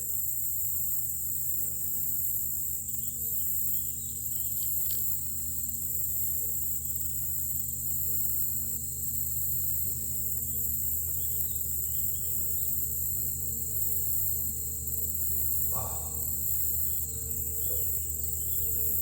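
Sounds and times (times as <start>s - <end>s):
insects chorus: 0.0s - 19.0s
faint ticks: 3.0s - 19.0s
low hum: 7.9s - 19.0s.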